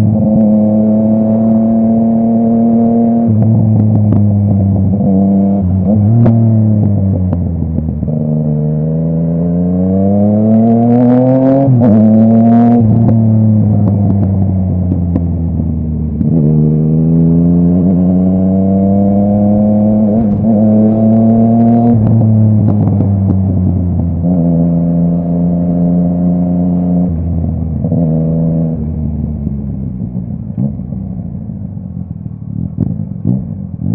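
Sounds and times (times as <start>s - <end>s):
motorcycle engine accelerating: 0.0s - 33.9s
exhaust crackles: 17.7s - 24.4s.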